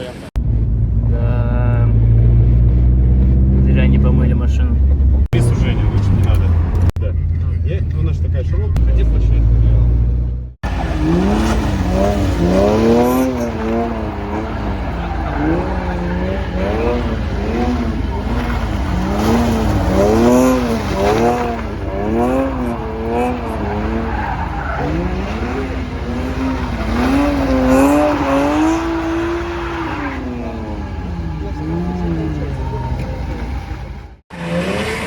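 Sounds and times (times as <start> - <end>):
car engine revving hard: 8.8 - 35.0
tyres skidding on tarmac: 10.6 - 35.0.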